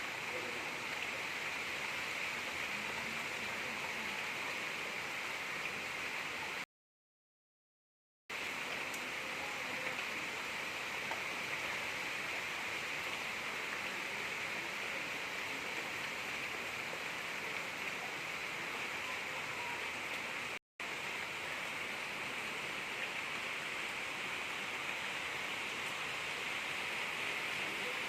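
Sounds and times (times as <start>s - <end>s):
gentle rain falling: 0.0s - 6.7s, 8.3s - 28.0s.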